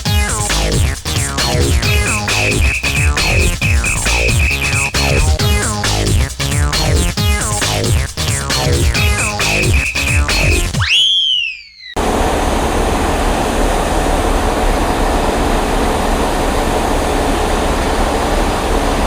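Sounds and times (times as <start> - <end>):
electronic music: 0.0 - 11.0
rising and falling sweep: 1.4 - 5.7
loud rushing noise: 1.4 - 6.2.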